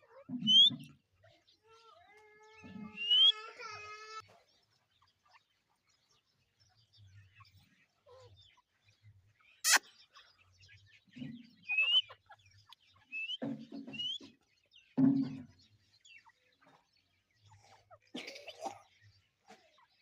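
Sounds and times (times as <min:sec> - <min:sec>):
francolin whistled calls: 0:00.4 - 0:00.8, 0:03.0 - 0:03.4, 0:11.6 - 0:12.2, 0:13.1 - 0:13.4, 0:14.0 - 0:14.3.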